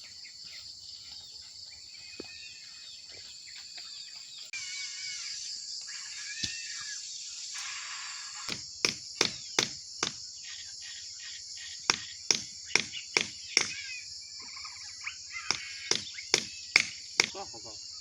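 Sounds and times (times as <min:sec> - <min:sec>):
insects chirring: 0:00.0 - 0:18.0
hand tool striking wood: 0:08.5 - 0:10.2, 0:11.9 - 0:13.8, 0:15.5 - 0:17.4.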